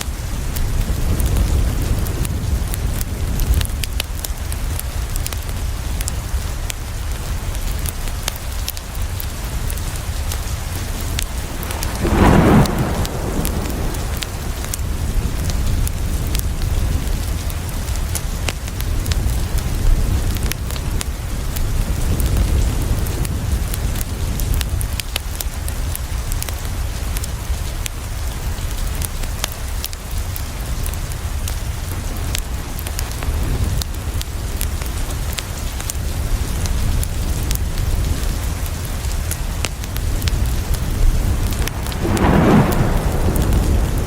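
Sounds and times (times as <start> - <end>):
rain on a window: 0.0 - 44.0
wood fire crackling: 0.0 - 44.0
low rumble: 10.9 - 16.4, 40.2 - 44.0.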